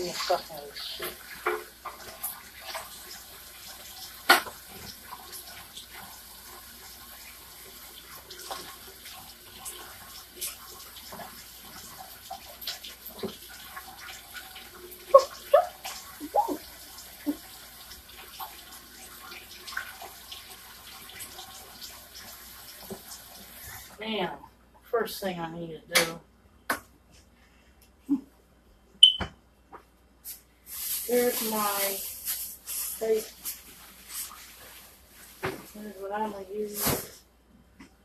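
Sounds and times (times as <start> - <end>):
tap running into sink: 4.2 - 5.0.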